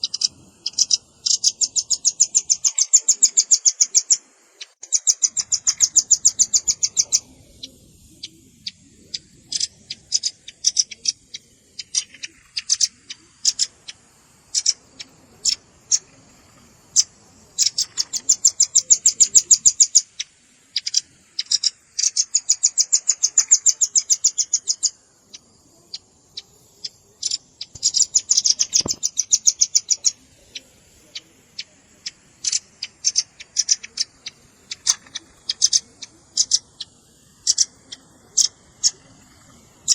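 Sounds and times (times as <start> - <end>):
bird calling in rapid runs: 0.0 - 39.9
single bird chips: 27.2 - 30.6.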